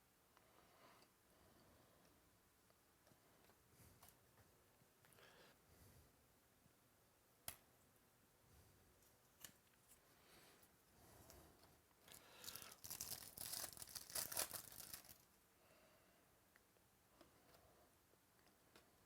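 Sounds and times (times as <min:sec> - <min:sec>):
foil wrapper tearing: 0:12.3 - 0:15.2.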